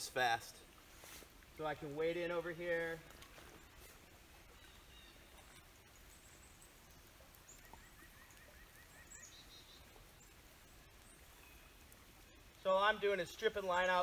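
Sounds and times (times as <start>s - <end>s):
faint birdsong chirps: 2.8s - 14.0s.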